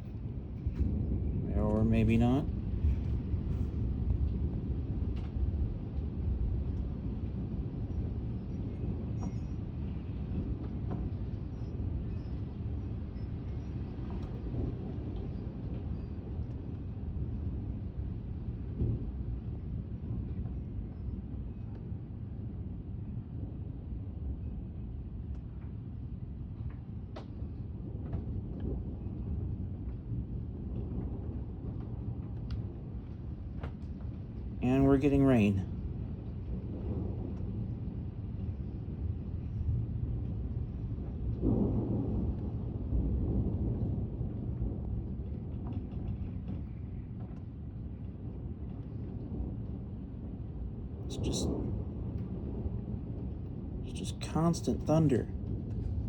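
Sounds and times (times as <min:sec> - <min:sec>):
gusty wind buffeting microphone: 0:00.0 - 0:34.6.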